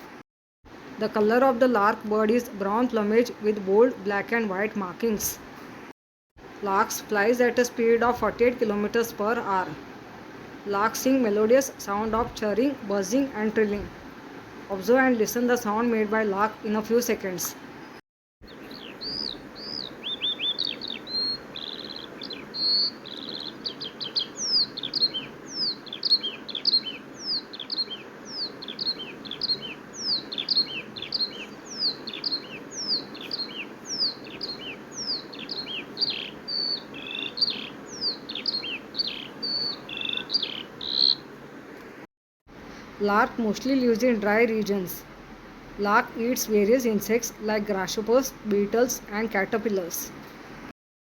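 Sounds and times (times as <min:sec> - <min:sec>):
background hiss: 0:16.8 - 0:49.0
lark singing: 0:18.5 - 0:41.3.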